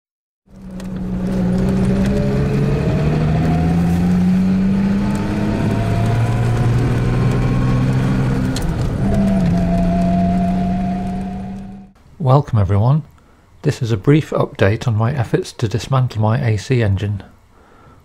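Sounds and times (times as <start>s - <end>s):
car engine running under load: 0.5s - 12.0s.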